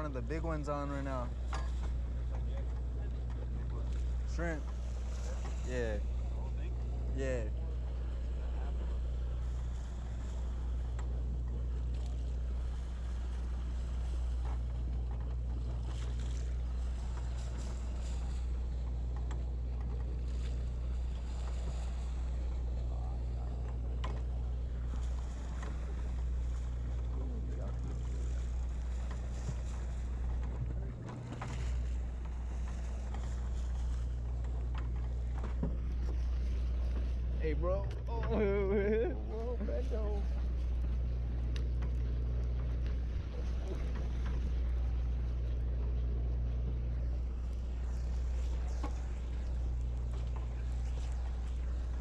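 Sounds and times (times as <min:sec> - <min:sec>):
boat engine droning: 0:00.0 - 0:52.0
faint clicks and knocks: 0:01.4 - 0:04.8, 0:10.8 - 0:12.3, 0:14.3 - 0:20.7, 0:23.4 - 0:38.4, 0:40.3 - 0:52.0.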